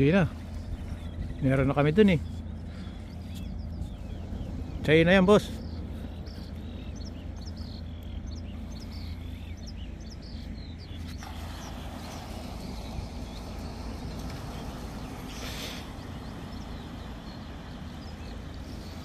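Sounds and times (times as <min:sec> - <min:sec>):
low steady rumble: 0:00.0 - 0:19.0
small birds chirping: 0:00.0 - 0:19.0.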